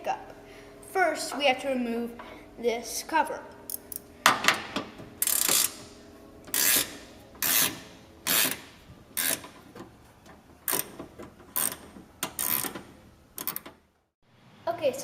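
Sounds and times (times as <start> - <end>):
ratchet wrench clicking: 5.2 - 5.9, 6.5 - 9.5, 10.7 - 12.8.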